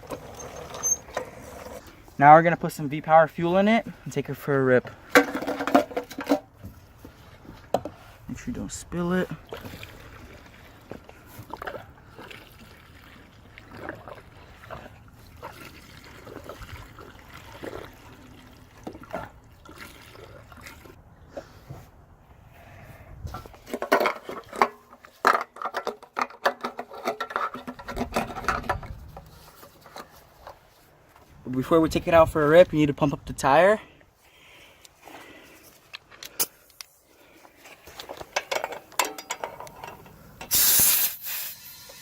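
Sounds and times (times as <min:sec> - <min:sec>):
petrol trickling into tank: 0:00.0 - 0:21.0
clicks and knocks from fuel can: 0:05.1 - 0:06.8, 0:23.4 - 0:30.6.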